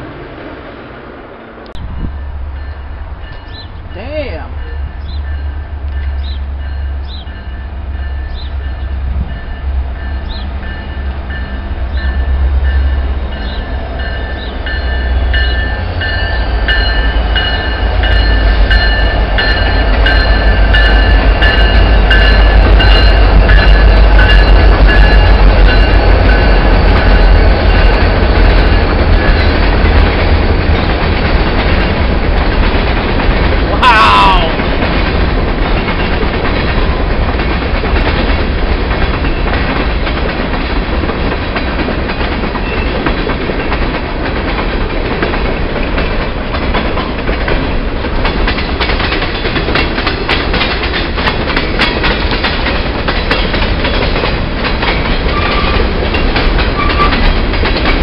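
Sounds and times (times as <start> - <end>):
wheels clattering over rail joints: 34.6 - 58.0.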